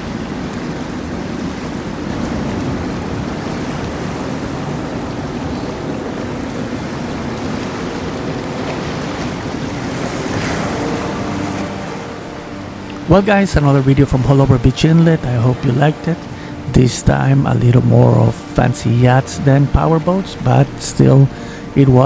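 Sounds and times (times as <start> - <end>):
wind buffeting microphone: 0.0 - 14.9
low boat engine rumble: 0.0 - 22.0
waves and churning water: 0.0 - 22.0.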